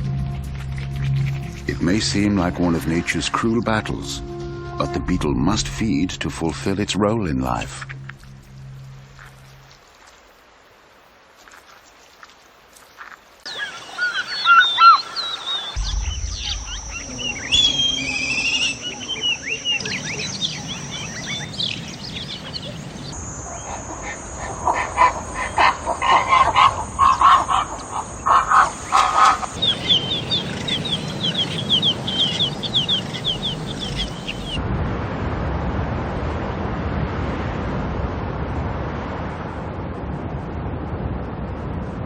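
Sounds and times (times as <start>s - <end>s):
steady rushing noise: 0.0s - 11.2s, 15.8s - 42.0s
bird calls and chirps: 12.8s - 34.6s
whistled bird glides: 13.5s - 34.6s.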